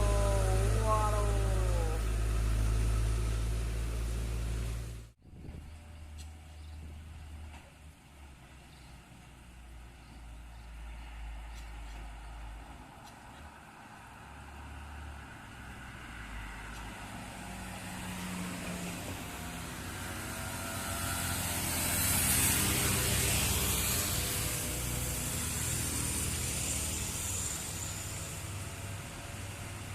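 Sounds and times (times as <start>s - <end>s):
vehicle engine approaching: 0.0s - 29.9s
rising hiss: 21.8s - 29.1s.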